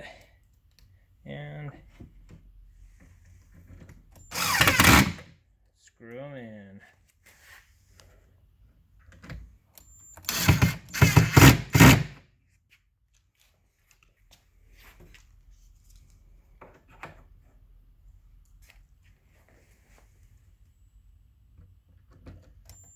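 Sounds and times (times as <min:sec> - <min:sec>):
cordless drill driving screws: 0:04.3 - 0:05.3, 0:10.2 - 0:12.2.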